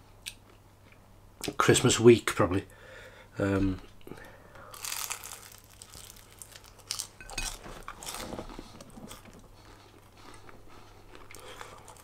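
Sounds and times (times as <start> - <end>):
person chewing crisp food: 4.7 - 12.0.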